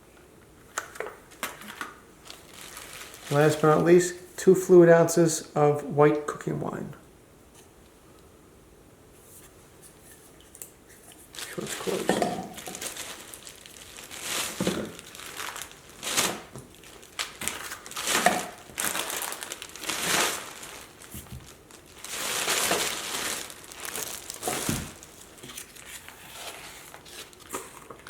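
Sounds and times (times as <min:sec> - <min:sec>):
plastic packaging crinkling: 0:00.8 - 0:04.2, 0:11.2 - 0:28.0.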